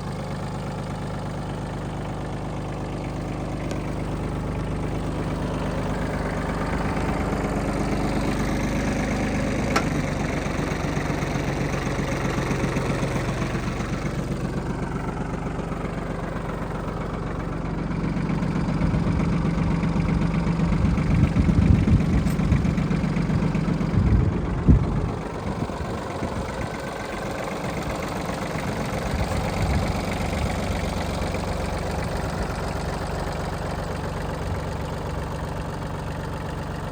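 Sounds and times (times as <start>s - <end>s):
diesel engine running: 0.0s - 36.9s
heavy low thumps: 20.7s - 26.0s.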